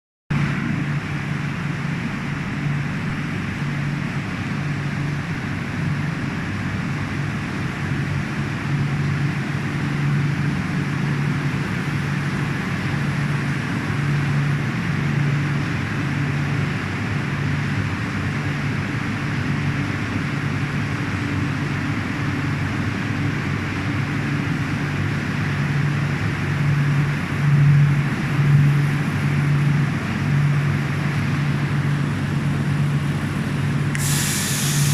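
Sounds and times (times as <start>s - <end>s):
glue coating machine running: 33.9s - 34.9s.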